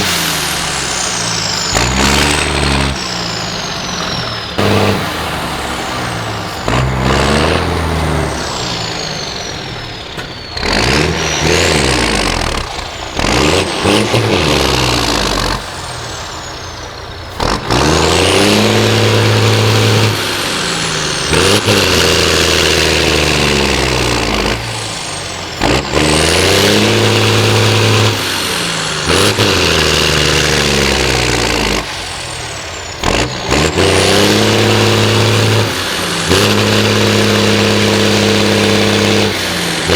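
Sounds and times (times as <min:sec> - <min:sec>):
diesel truck engine revving: 0:00.0 - 0:39.9.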